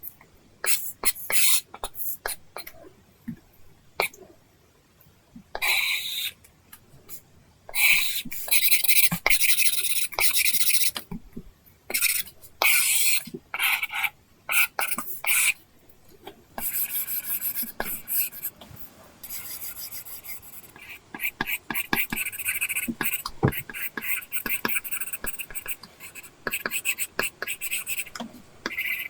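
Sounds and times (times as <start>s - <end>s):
scratchy pen strokes on screen: 16.6s - 29.0s.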